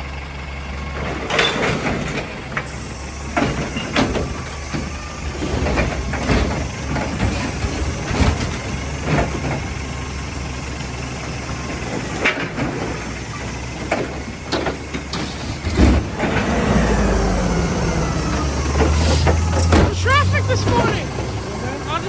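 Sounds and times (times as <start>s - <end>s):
heavy truck engine running: 0.0s - 22.0s
metal clanks and knocks: 3.4s - 9.7s, 18.8s - 20.0s.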